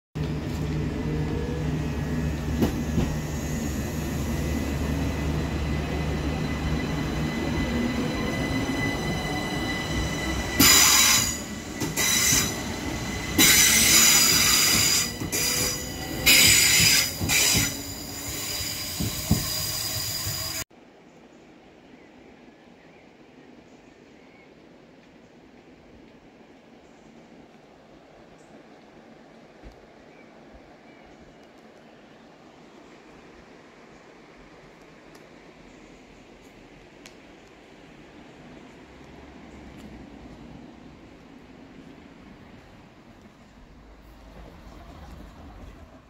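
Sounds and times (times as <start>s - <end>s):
electric train motors humming: 0.2s - 20.6s
train wheels squealing: 1.0s - 20.6s.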